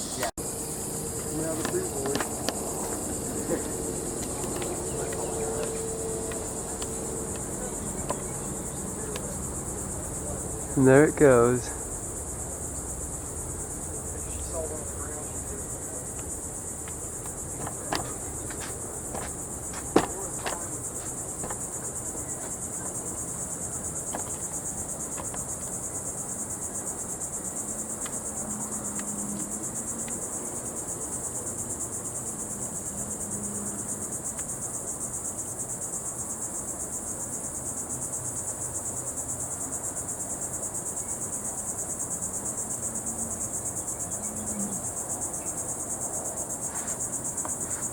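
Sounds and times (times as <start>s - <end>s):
high-pitched insect chorus: 0.0s - 47.9s
sharp knocks: 16.8s - 21.8s, 24.1s - 25.6s.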